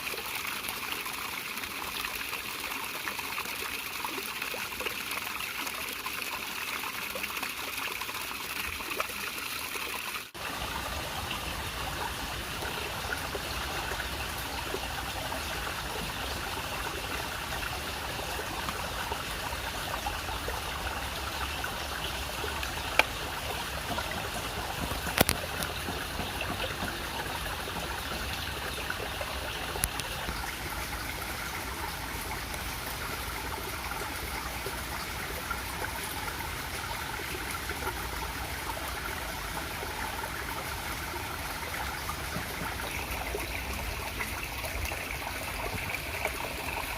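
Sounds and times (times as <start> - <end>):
stream water trickling: 0.0 - 46.9
faint clicks: 29.7 - 30.4.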